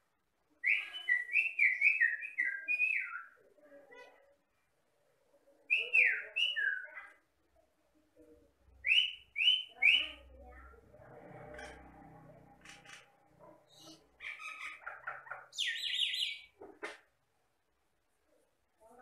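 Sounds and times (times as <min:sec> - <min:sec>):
bird whistling: 0:00.7 - 0:03.3, 0:08.8 - 0:10.1, 0:15.6 - 0:16.5
bird chattering: 0:12.6 - 0:16.9.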